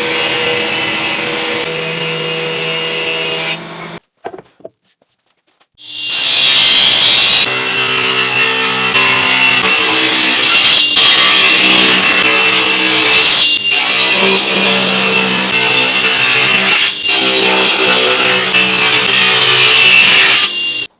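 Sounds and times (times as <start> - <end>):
power saw cutting wood: 0.0 - 4.0, 5.8 - 20.9.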